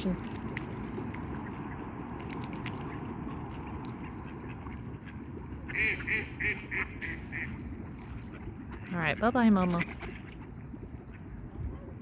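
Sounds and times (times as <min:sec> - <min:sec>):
steady low rumble: 0:00.0 - 0:12.0
duck quacking: 0:05.7 - 0:07.5.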